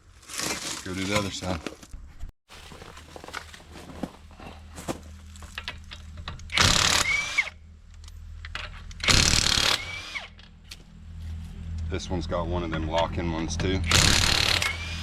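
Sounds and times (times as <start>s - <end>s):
impact wrench bursts: 6.5s - 7.6s, 9.0s - 10.4s, 13.8s - 15.0s.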